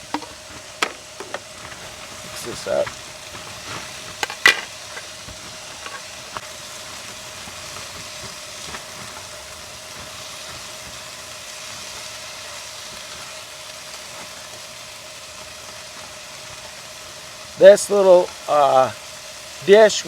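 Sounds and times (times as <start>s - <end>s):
utensil clanking against pan: 0.0s - 1.7s, 4.2s - 5.1s
meat and peppers sizzling in a pan: 0.0s - 20.0s.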